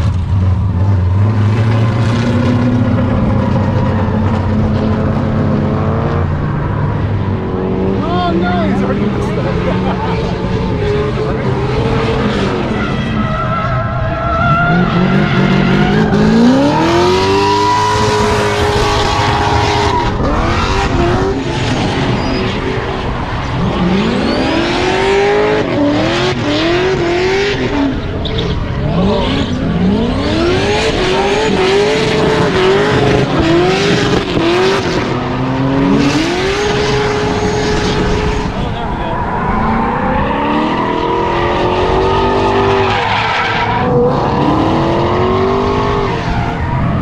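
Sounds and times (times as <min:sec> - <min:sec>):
car engine revving hard: 0:13.9 - 0:47.0.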